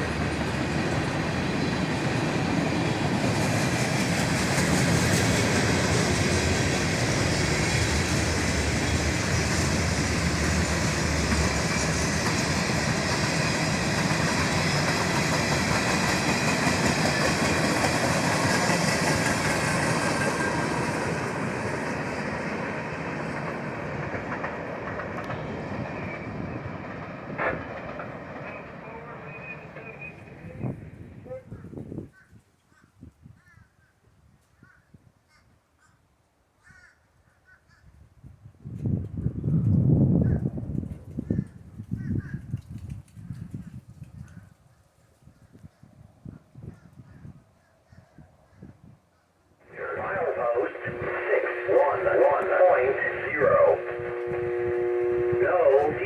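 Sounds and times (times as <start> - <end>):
train cars rumbling on rails: 0.0 - 31.8, 49.6 - 56.0.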